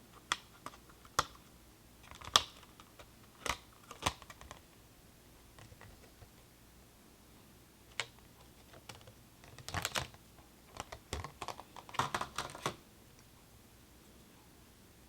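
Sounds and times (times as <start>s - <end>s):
small parts and packaging clicking: 2.0s - 4.6s, 7.9s - 12.8s.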